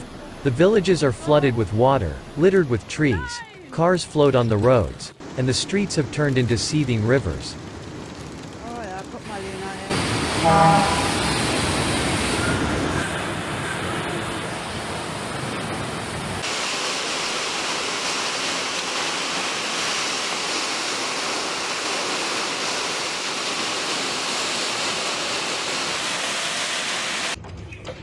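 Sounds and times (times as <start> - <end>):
floodwater rushing: 0.3 - 27.4.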